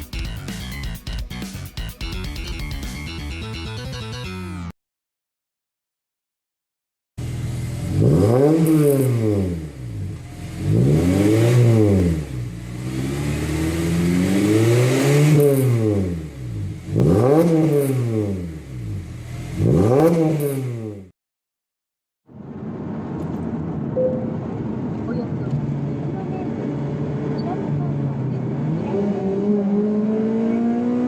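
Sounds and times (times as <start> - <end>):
car engine revving: 7.2 - 21.1, 22.7 - 31.0.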